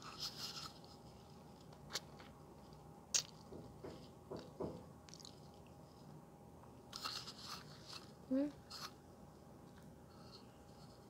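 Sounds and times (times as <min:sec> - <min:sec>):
mouth smacks and clicks: 0:03.1 - 0:03.4
soft squishy chewing: 0:05.1 - 0:06.0.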